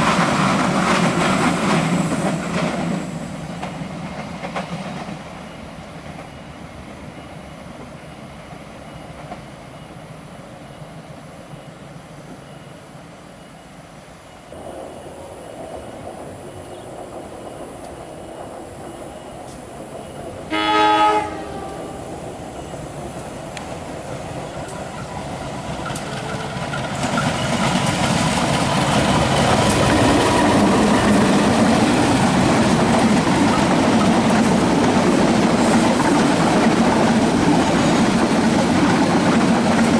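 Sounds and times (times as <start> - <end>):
train rumbling on rails: 0.0 - 39.9
locomotive horn blast: 20.5 - 22.4.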